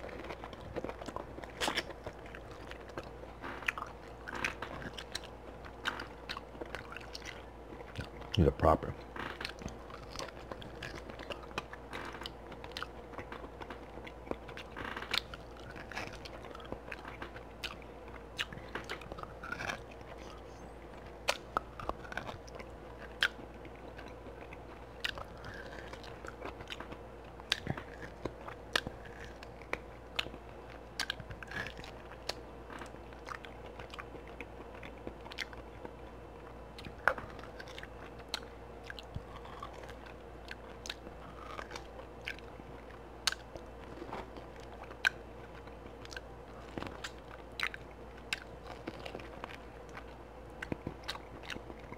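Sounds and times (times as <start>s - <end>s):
chewing and biting ribs: 0.0s - 51.9s.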